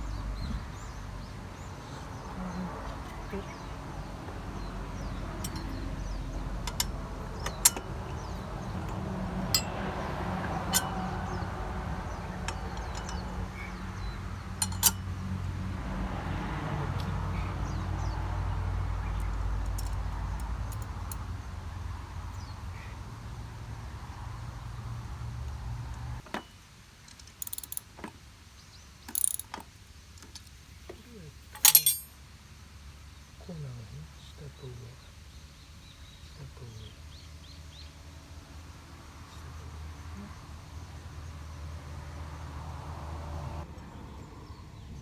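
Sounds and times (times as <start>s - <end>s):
metal tools clinking: 5.4s - 11.5s, 12.2s - 15.2s, 26.2s - 28.1s, 29.1s - 30.5s, 31.5s - 32.2s.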